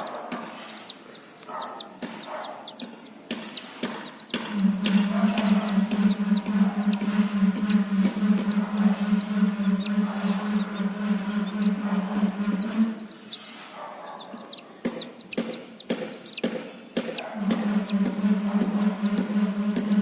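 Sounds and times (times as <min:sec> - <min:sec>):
chicks cheeping: 0:00.0 - 0:20.0
steady low hum: 0:04.4 - 0:13.6, 0:15.2 - 0:20.0.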